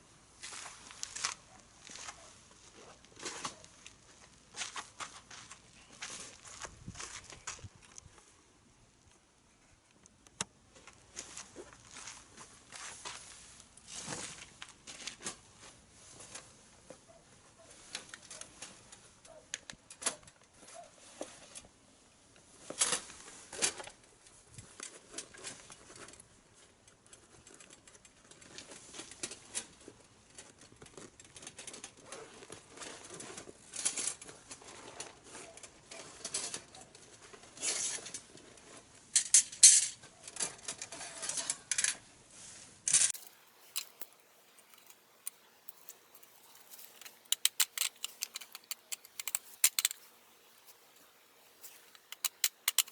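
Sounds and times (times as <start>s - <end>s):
wood fire crackling and popping: 43.2s - 52.9s.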